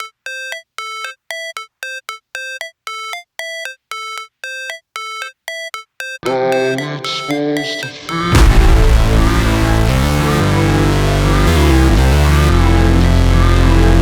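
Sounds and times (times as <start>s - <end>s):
short blips: 0.0s - 8.8s
electronic backing music: 0.0s - 14.0s
synthesized beeps: 0.0s - 14.0s.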